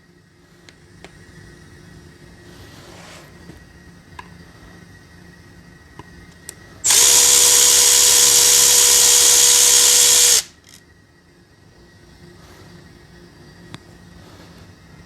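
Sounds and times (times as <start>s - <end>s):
loud hiss: 6.8s - 10.5s
workshop tool whining: 6.8s - 10.7s.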